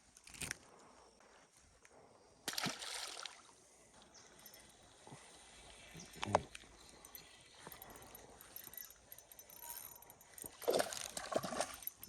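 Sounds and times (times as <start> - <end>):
creek water sloshing: 2.5 - 12.0.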